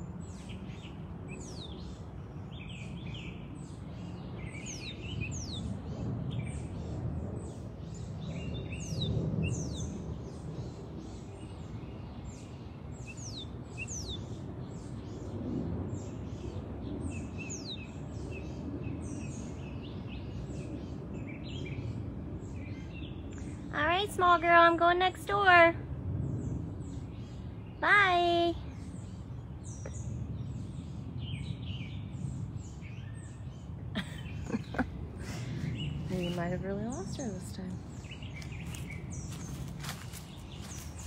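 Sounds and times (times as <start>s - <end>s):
low background rumble: 0.0s - 41.0s.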